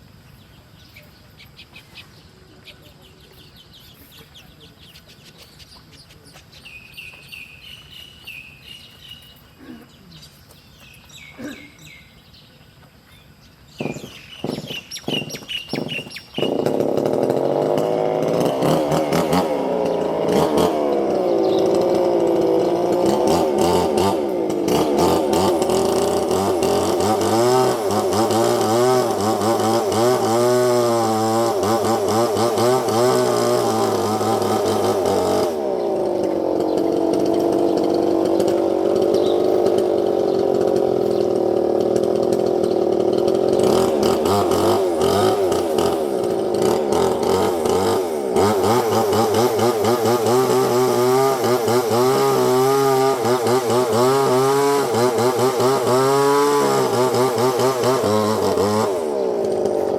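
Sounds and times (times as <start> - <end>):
small birds chirping: 0.0 - 17.1, 18.4 - 24.0, 34.4 - 48.0
small engine running: 0.0 - 59.9.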